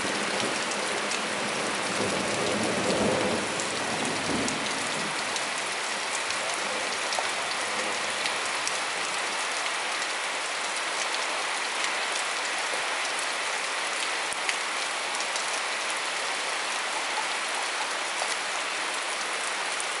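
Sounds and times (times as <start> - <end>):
heavy rain hissing: 0.0 - 20.0.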